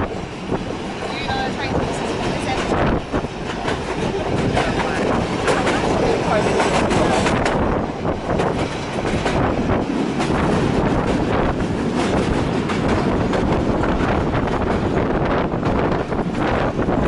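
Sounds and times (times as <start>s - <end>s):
train rumble inside carriage: 0.0s - 17.0s
wind noise on microphone: 0.0s - 17.0s.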